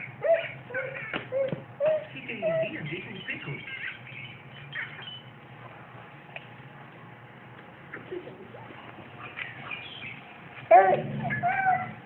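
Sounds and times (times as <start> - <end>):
child making high-pitched sounds: 10.7 - 12.0.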